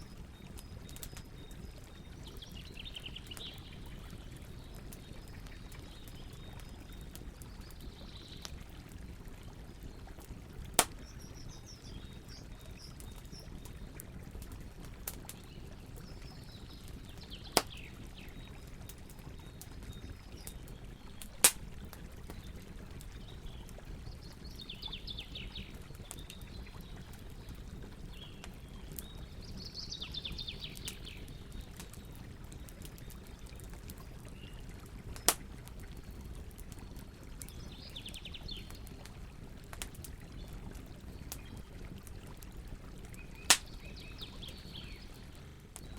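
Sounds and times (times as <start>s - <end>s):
campfire crackling: 0.0s - 45.9s
loud fire pops: 10.8s - 11.1s, 43.5s - 43.7s.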